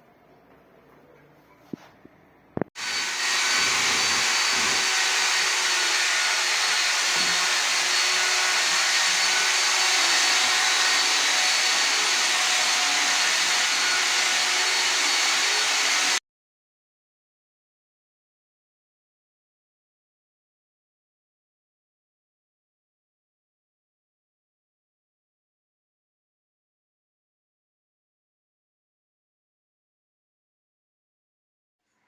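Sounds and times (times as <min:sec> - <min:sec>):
electric motor running with hiss: 0:02.8 - 0:16.2.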